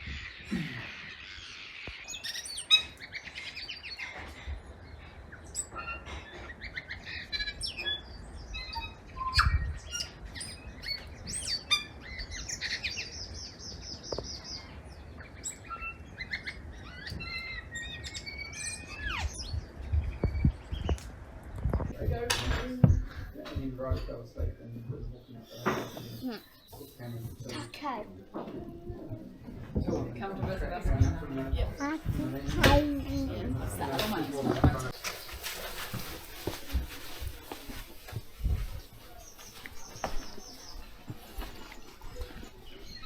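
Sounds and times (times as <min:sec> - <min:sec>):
birds chirping and whistling: 0:00.0 - 0:21.0.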